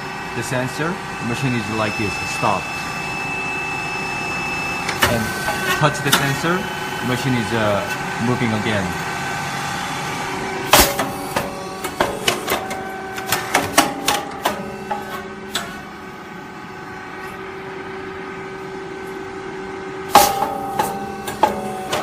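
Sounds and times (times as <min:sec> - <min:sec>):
steady machine hum: 0:00.0 - 0:22.0
rice cake machine popping: 0:20.1 - 0:22.0.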